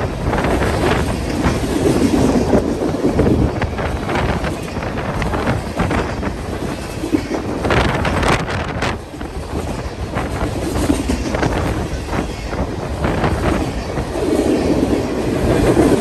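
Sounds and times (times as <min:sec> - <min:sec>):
train rumbling past: 0:00.0 - 0:16.0
wheels clicking over rail joints: 0:00.0 - 0:16.0
wind buffeting microphone: 0:00.0 - 0:16.0.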